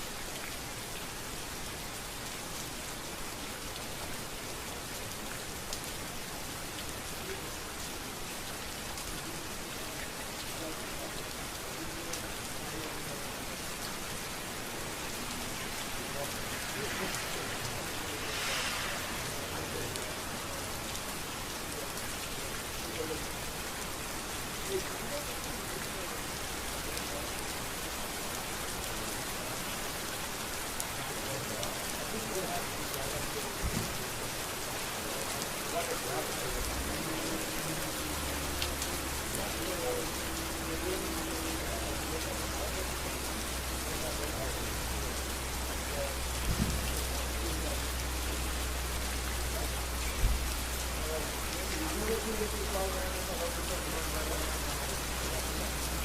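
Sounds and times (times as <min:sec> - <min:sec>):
rain falling on a street: 0:00.0 - 0:56.0
ticks of individual raindrops: 0:19.6 - 0:56.0.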